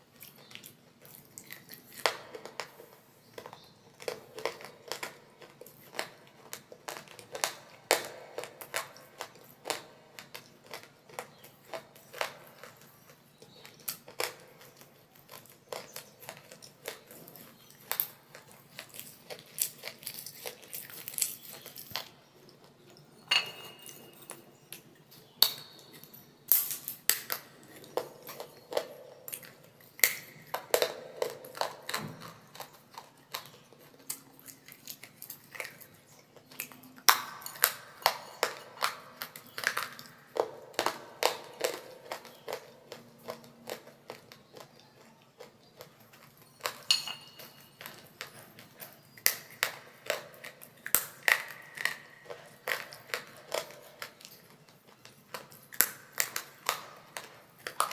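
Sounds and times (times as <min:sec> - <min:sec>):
clay crunching while chewed: 0:00.0 - 0:57.9
short ringing clinks: 0:23.3 - 0:24.3.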